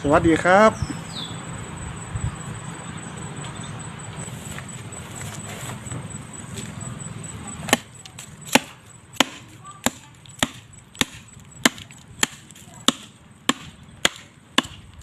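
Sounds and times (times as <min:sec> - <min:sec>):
knife chopping: 0:08.5 - 0:14.8.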